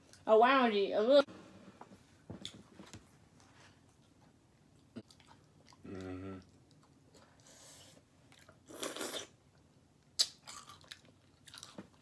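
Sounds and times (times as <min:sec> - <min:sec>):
person chewing pizza: 0:04.8 - 0:12.0
short hummed voice: 0:05.8 - 0:06.4.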